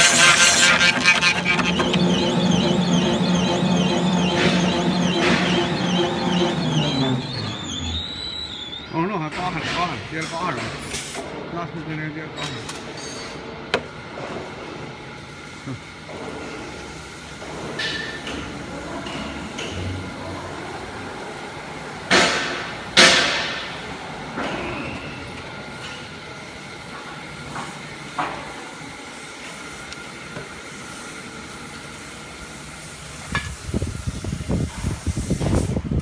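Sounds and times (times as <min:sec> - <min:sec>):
loud cutting bursts: 0:00.0 - 0:09.0
drilling machine humming: 0:00.0 - 0:09.6.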